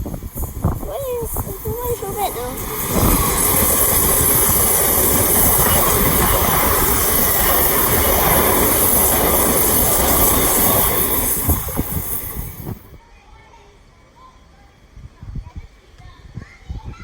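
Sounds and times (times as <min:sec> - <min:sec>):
train passing close by: 0:00.0 - 0:13.0.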